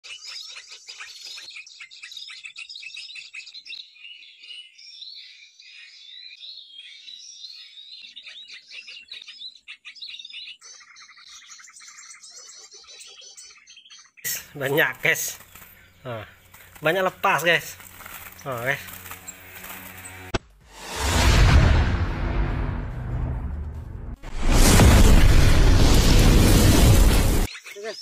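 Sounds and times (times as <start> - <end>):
small birds chirping and twittering: 0.0 - 20.3, 27.4 - 28.0.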